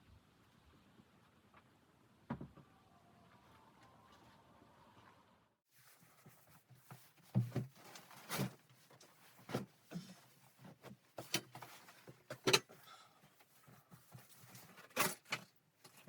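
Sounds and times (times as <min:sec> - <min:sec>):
faint rustling and scraping: 0:04.1 - 0:16.0.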